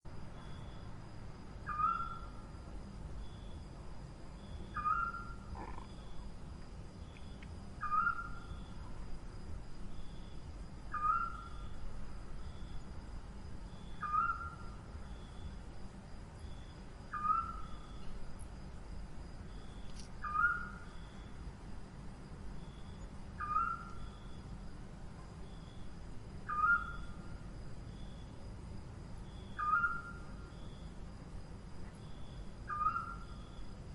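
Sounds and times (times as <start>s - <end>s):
screech owl calling: 1.6s - 2.5s, 4.7s - 6.2s, 7.8s - 8.8s, 10.9s - 11.8s, 13.9s - 14.8s, 17.1s - 18.0s, 20.2s - 21.0s, 23.4s - 24.3s, 26.4s - 27.2s, 29.5s - 30.5s, 32.6s - 33.5s.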